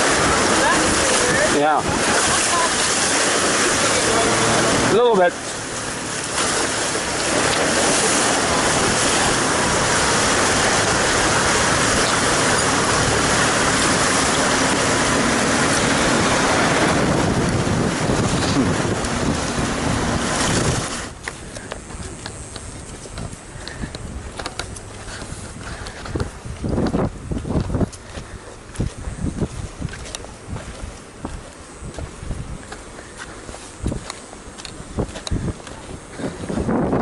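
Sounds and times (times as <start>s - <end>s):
river water rushing: 0.0s - 26.8s.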